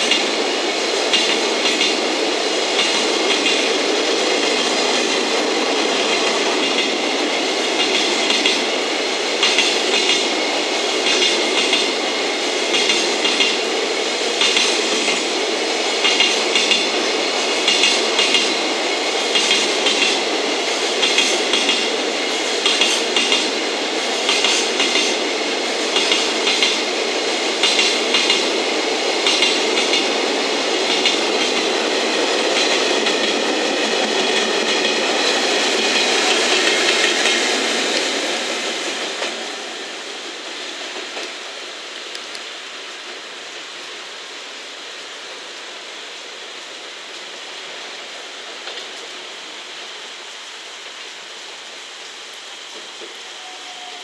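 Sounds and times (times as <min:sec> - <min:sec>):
wheels clacking over rail joints: 0:00.0 - 0:08.8, 0:12.6 - 0:39.6
freight train rolling past: 0:00.0 - 0:54.0.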